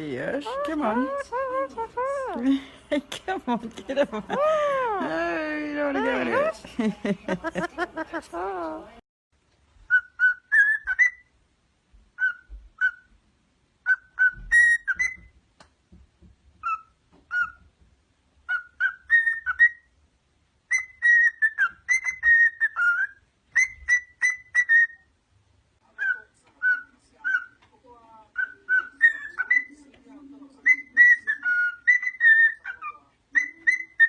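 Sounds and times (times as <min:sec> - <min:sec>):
parrot whistling: 0:00.4 - 0:02.4, 0:09.9 - 0:11.3, 0:13.8 - 0:15.3, 0:18.5 - 0:19.9, 0:20.7 - 0:25.1, 0:28.4 - 0:29.7, 0:30.7 - 0:34.0.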